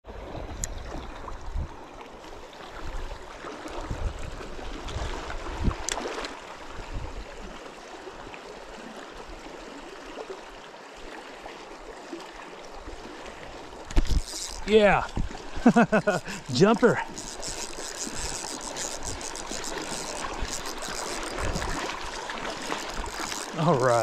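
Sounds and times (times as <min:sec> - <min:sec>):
river water rushing: 0:09.8 - 0:24.0.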